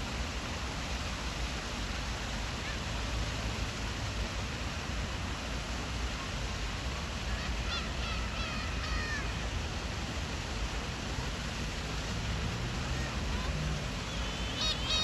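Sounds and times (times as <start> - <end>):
steady background rush: 9.5 - 15.0
gull calling: 12.4 - 15.0.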